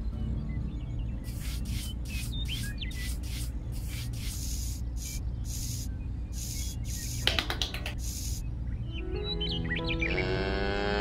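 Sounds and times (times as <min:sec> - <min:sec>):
trowel scraping sand: 0:01.3 - 0:04.4.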